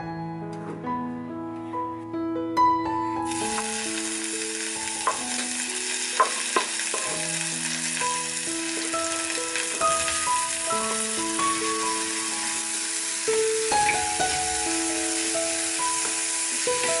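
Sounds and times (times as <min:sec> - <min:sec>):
food sizzling in hot oil: 0:03.3 - 0:17.0.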